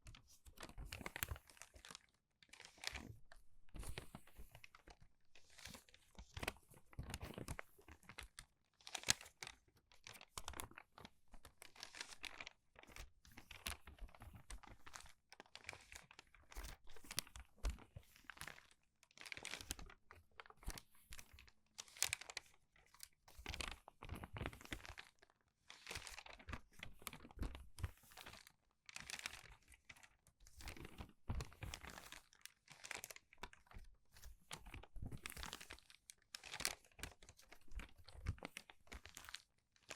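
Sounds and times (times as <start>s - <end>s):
paper pages rustling: 29.0s - 39.4s.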